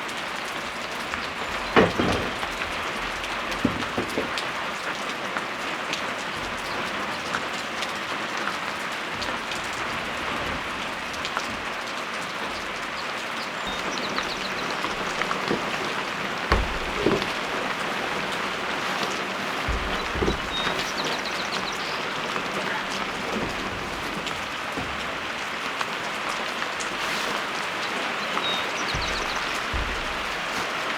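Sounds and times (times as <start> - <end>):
rain falling: 0.0 - 30.9
dull thumps: 0.6 - 4.8, 13.6 - 30.9
drops ticking: 6.5 - 27.0, 28.0 - 30.9.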